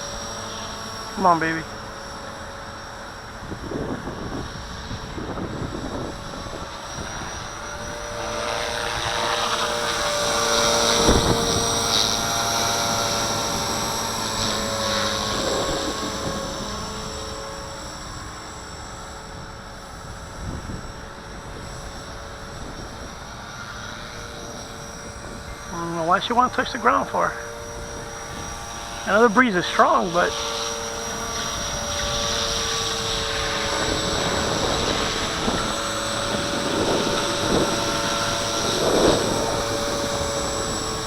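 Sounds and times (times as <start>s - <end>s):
rc helicopter hovering whine: 0.0s - 41.0s.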